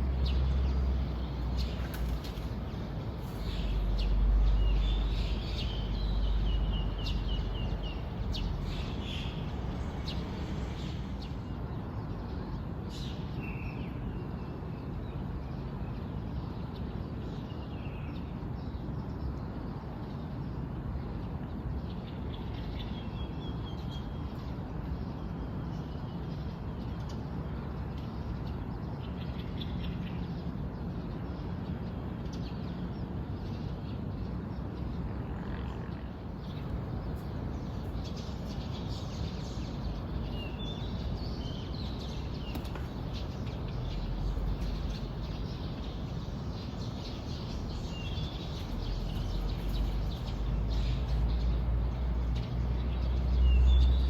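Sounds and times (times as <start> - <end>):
small birds chirping: 0.0 - 11.6, 35.9 - 54.0.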